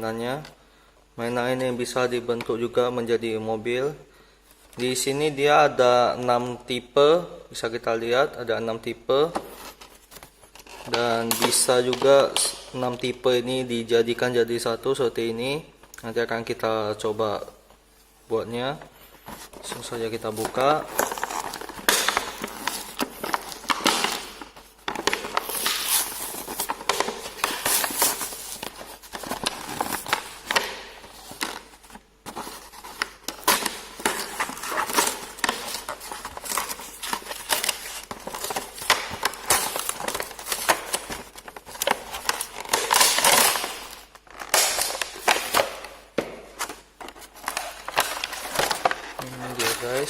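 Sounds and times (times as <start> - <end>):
packaging crackling and rustling: 19.0 - 50.0
packaging clicks and snaps: 32.9 - 45.9.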